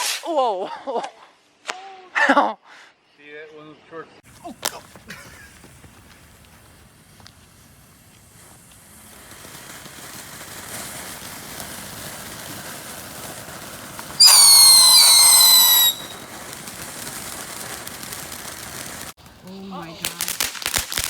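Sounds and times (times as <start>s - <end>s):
firework hissing and crackling: 0.0s - 0.3s, 4.2s - 21.0s
shrill falling whistle: 14.2s - 16.2s.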